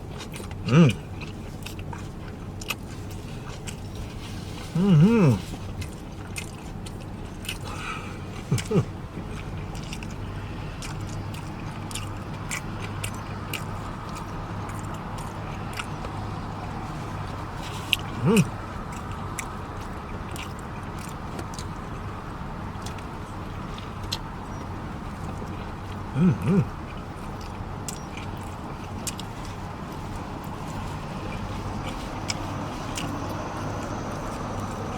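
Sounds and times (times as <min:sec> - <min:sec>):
close-miked chewing: 0:00.0 - 0:34.9
low background hum: 0:00.0 - 0:34.9
person humming mm: 0:04.7 - 0:05.5, 0:18.1 - 0:18.5, 0:26.2 - 0:26.7.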